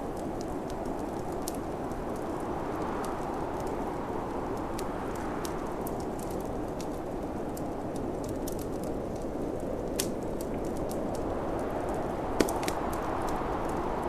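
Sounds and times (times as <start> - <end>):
snowstorm wind rushing: 0.0 - 14.0
wood fire crackling: 0.0 - 14.0.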